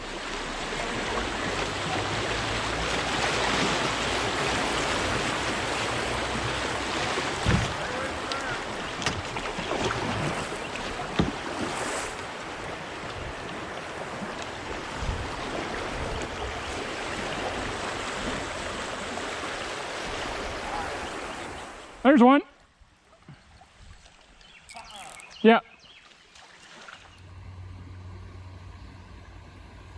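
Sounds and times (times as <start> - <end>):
creek water rushing: 0.0 - 22.1
sharp knocks: 7.4 - 7.8.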